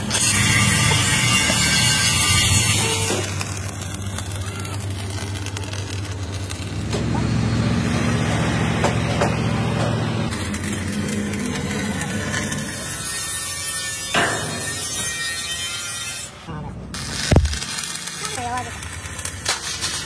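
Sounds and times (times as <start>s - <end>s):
engine running with low hum: 6.2s - 12.3s.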